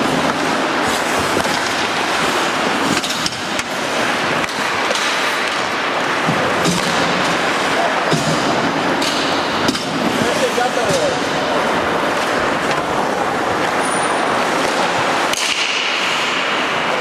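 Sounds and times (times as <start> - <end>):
hockey sticks and puck knocking: 0.0 - 16.8
skate blades scraping ice: 0.0 - 17.0.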